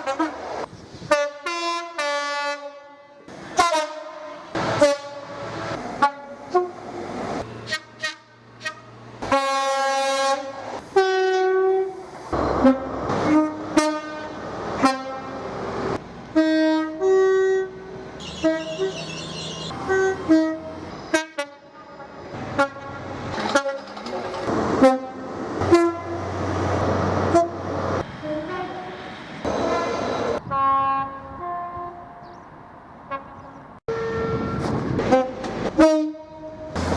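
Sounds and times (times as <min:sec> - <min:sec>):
two-tone train horn blasts: 0:00.0 - 0:00.4, 0:01.1 - 0:15.5, 0:16.3 - 0:23.9, 0:24.8 - 0:26.3, 0:27.3 - 0:27.6, 0:28.2 - 0:32.3, 0:33.1 - 0:36.8
passing train running noise: 0:00.0 - 0:36.9
high-pitched squeal: 0:18.2 - 0:20.3, 0:28.2 - 0:30.4.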